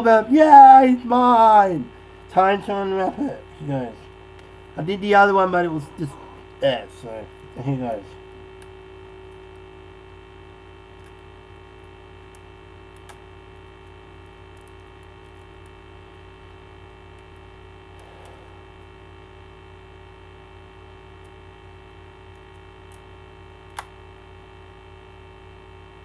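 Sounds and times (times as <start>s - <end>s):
electrical mains hum: 0.0s - 26.0s
faint clicks: 11.8s - 15.8s.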